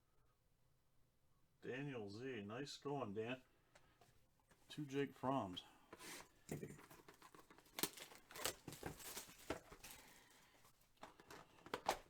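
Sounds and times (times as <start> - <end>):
packaging rustling: 6.0 - 12.0.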